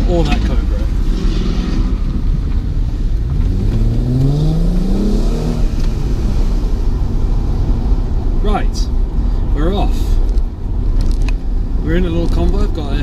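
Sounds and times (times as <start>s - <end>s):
car engine accelerating: 0.0s - 8.5s
low road rumble: 0.0s - 13.0s.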